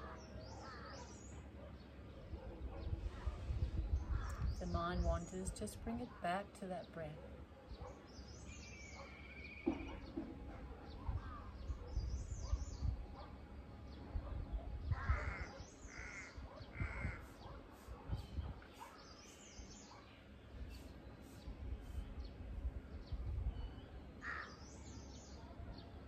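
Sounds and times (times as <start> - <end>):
loud harsh bird calls: 0.0 - 1.4, 7.8 - 13.3, 14.8 - 20.2, 24.2 - 25.4
small birds chirping: 0.0 - 26.0.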